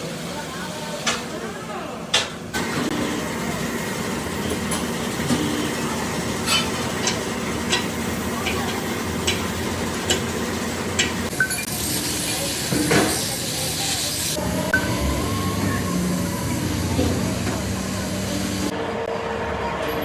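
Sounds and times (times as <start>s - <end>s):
machinery hum: 13.3s - 19.0s.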